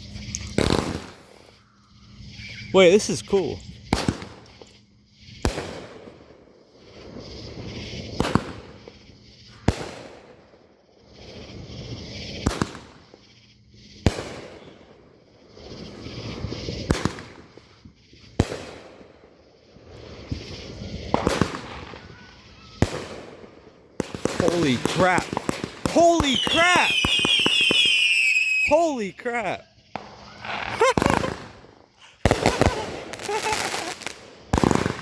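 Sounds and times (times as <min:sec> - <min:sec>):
fireworks crackling hiss: 0:00.0 - 0:35.0
fireworks sharp bangs: 0:00.5 - 0:01.5, 0:03.8 - 0:06.3, 0:06.9 - 0:10.4, 0:12.0 - 0:13.3, 0:14.0 - 0:14.9, 0:15.6 - 0:19.1, 0:19.9 - 0:35.0.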